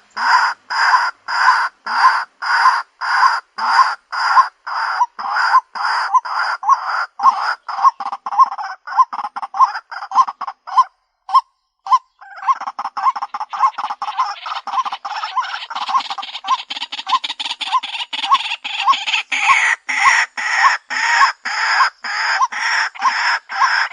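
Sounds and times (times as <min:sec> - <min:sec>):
waterhen harsh croaking call: 0:00.0 - 0:23.9.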